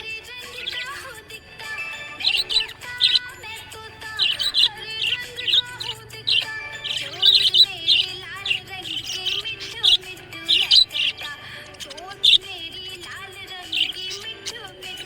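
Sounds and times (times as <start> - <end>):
budgerigar chirping: 0.0 - 15.0
music playing: 0.0 - 15.0.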